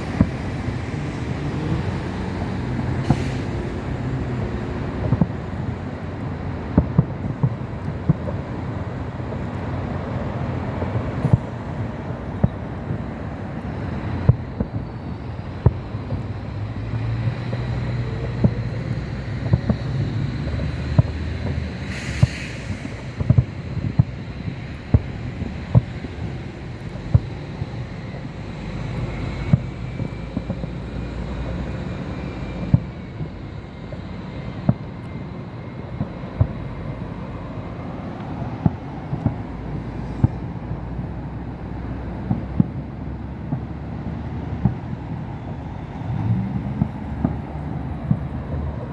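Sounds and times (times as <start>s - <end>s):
fireworks popping and banging: 0.0s - 1.8s, 2.4s - 11.7s, 12.4s - 27.9s, 28.9s - 32.0s, 36.0s - 40.6s, 42.2s - 48.9s
short hiss: 3.0s - 3.9s, 21.8s - 23.4s.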